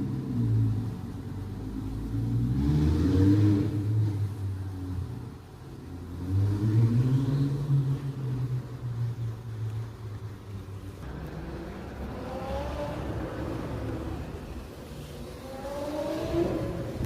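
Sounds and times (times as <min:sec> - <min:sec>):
sports car engine revving: 0:00.2 - 0:05.1, 0:11.0 - 0:17.0.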